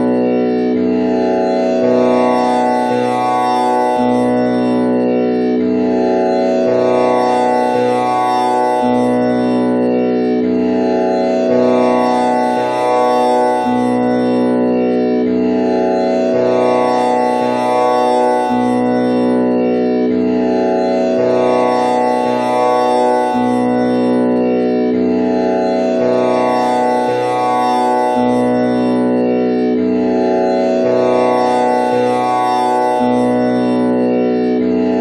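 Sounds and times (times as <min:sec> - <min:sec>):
tanpura drone: 0:00.0 - 0:35.0.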